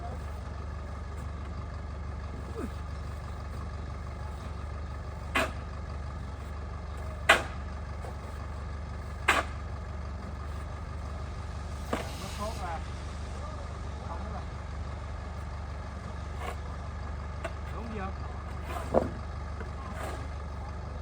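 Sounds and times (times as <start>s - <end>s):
low engine-like hum: 0.0s - 21.0s.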